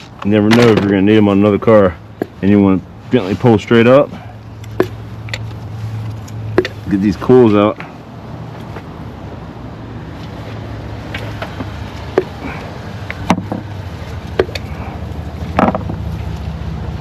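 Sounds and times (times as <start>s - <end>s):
ignition coils clicking and knocking: 0.0s - 1.2s, 4.4s - 6.9s, 11.0s - 16.5s
steady low hum: 1.0s - 17.0s.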